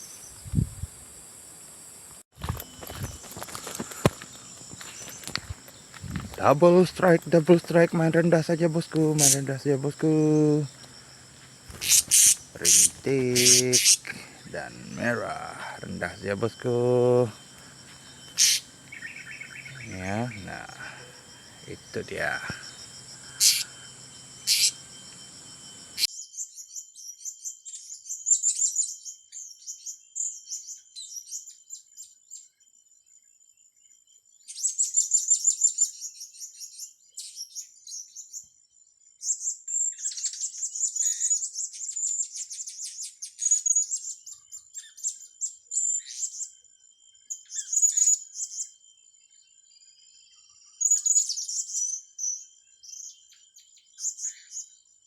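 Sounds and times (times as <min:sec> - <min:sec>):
faint high whine: 0:02.4 - 0:26.1
parrots chirping: 0:09.1 - 0:09.7, 0:10.4 - 0:26.1.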